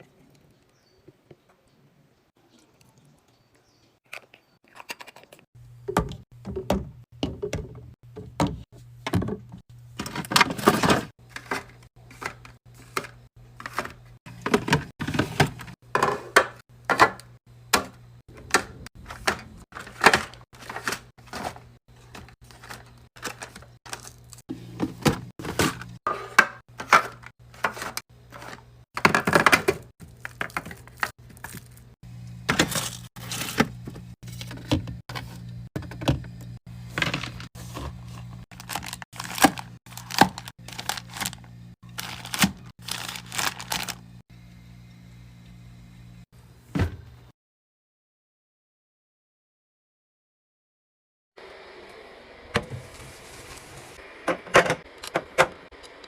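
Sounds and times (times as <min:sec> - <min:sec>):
containers clacking into fridge: 0:05.9 - 0:24.1, 0:24.8 - 0:31.7.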